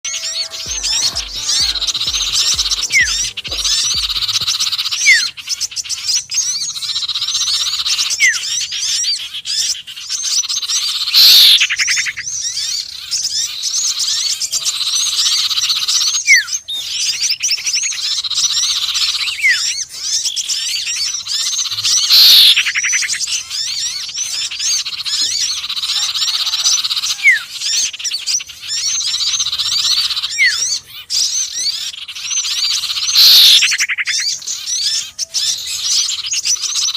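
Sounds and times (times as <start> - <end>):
downward-sweeping bird call: 0.0 - 5.4, 21.0 - 36.9
birds twittering chorus: 0.0 - 36.9.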